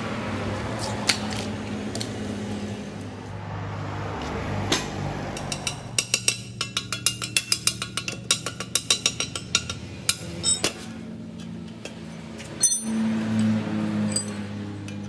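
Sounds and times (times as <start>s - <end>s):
hammer striking metal: 4.6s - 10.6s.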